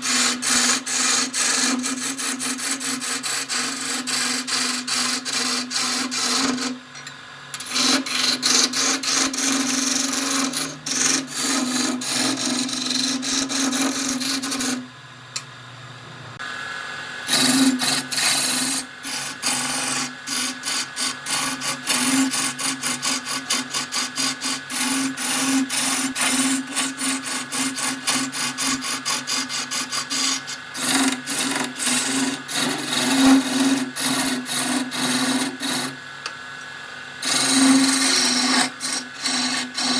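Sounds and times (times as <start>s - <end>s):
turning tool scraping wood: 0.0s - 14.9s, 17.3s - 36.0s, 37.2s - 39.9s
wood lathe motor hum: 0.0s - 15.0s, 17.2s - 36.1s, 37.2s - 39.9s.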